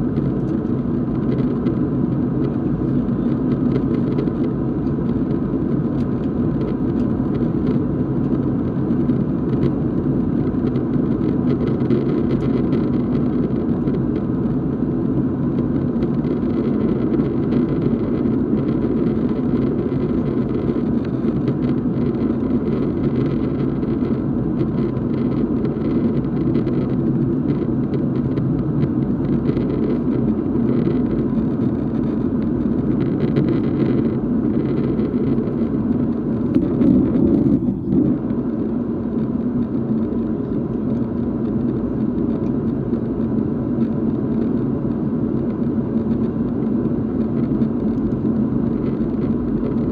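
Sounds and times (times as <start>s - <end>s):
airliner cabin drone: 0.0s - 49.9s
engine and airflow noise: 0.0s - 49.9s.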